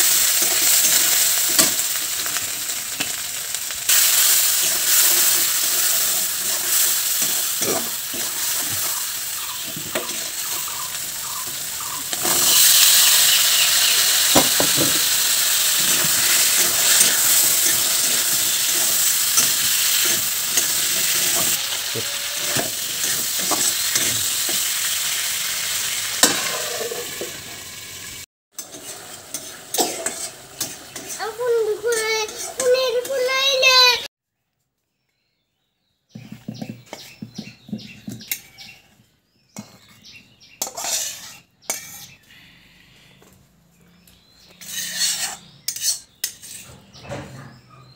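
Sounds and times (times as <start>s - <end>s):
vegetables sizzling in a pan: 0.0s - 34.1s
metal spatula scraping pan: 4.9s - 9.0s, 11.4s - 24.6s, 25.9s - 27.5s, 28.6s - 33.6s, 40.6s - 42.2s, 44.5s - 47.5s.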